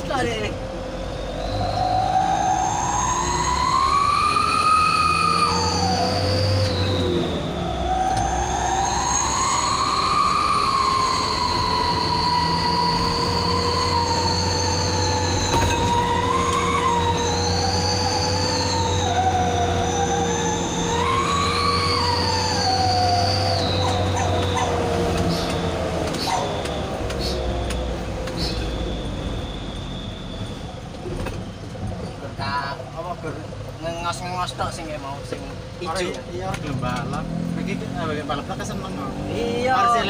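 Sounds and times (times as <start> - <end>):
diesel engine rumbling: 0.0 - 40.0
truck exhaust whistle howling: 0.9 - 31.7.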